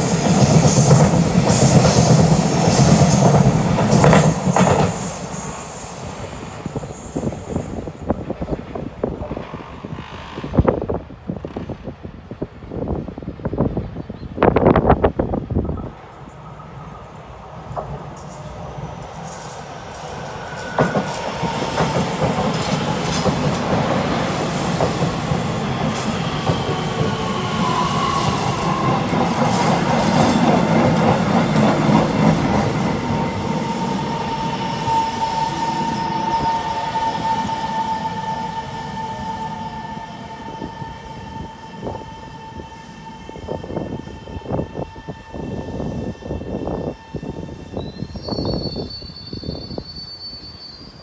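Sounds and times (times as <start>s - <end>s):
train rumbling past: 0.0s - 51.0s
high wheel squeal: 0.8s - 7.9s, 19.3s - 23.2s, 25.7s - 29.1s, 33.3s - 51.0s.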